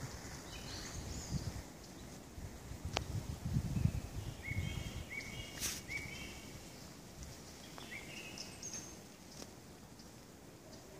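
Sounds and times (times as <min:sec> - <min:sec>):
small birds chirping: 0:00.0 - 0:02.3, 0:03.6 - 0:10.9
low rumble on microphone: 0:02.3 - 0:05.1.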